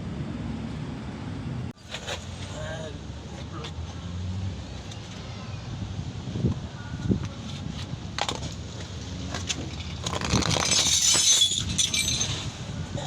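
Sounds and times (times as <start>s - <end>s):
metal tools clinking and scraping: 9.4s - 12.6s.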